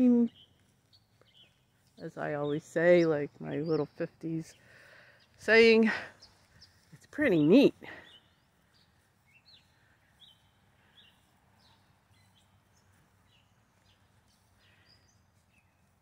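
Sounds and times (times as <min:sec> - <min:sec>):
faint bird chirps: 0:07.9 - 0:16.0.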